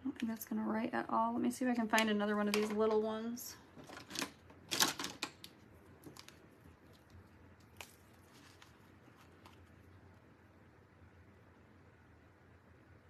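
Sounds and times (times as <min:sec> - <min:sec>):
rummaging rustle: 0:07.8 - 0:09.8.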